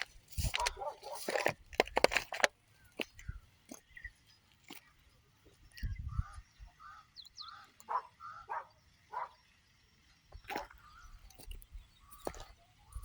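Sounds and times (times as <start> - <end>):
birds calling: 2.3 - 9.7, 10.3 - 13.0
low rumble on microphone: 5.7 - 6.5.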